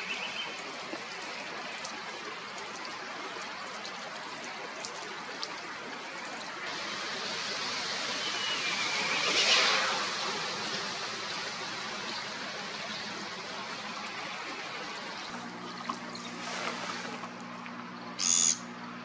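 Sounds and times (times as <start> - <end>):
steady rushing hiss: 6.7 - 15.4
bird quavering whistled call: 8.2 - 9.6, 18.2 - 18.7.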